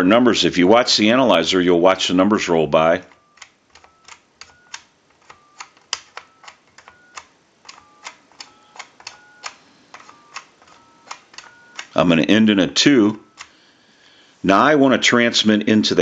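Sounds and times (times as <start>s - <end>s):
two-note dialling beeps: 3.1s - 7.2s, 7.8s - 11.9s
telephone keypad clicks: 3.1s - 12.0s, 13.1s - 13.6s.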